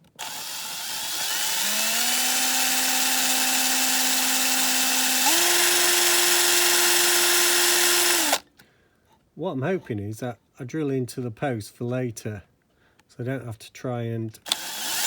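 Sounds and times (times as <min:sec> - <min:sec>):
power drill motor whine: 0:00.0 - 0:08.4, 0:14.5 - 0:15.0.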